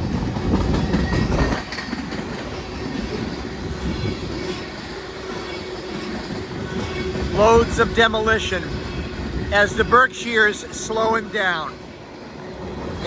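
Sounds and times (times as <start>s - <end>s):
wheels clicking over rail joints: 0.0s - 9.3s
freight train rumbling: 0.0s - 13.0s.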